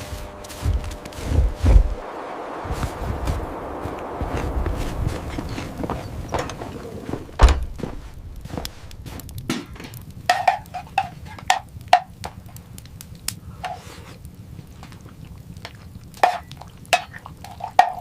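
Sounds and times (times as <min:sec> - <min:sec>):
heavy thump: 0:00.6 - 0:02.1, 0:04.3 - 0:09.9.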